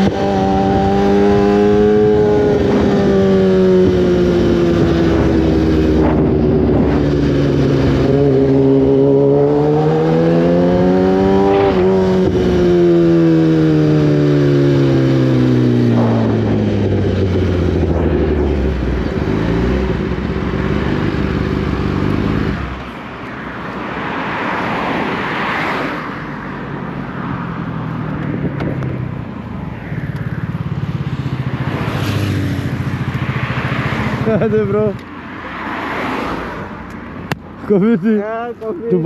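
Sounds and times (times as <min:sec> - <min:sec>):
motorcycle engine: 0:00.0 - 0:25.3, 0:26.0 - 0:38.0
rush of noise: 0:00.2 - 0:13.3, 0:14.4 - 0:21.7.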